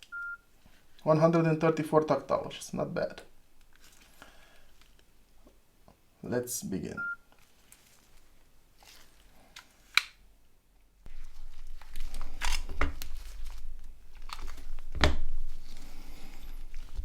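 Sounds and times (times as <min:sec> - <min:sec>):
rustling and crinkling: 0:03.6 - 0:05.6, 0:07.2 - 0:10.2, 0:11.1 - 0:17.0.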